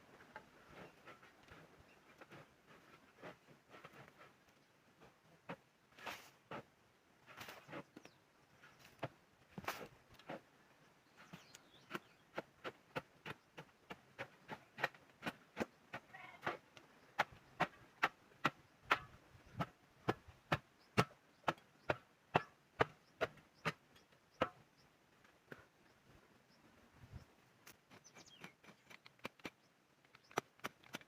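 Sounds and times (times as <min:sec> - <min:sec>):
hand tool chopping: 0:17.2 - 0:23.8.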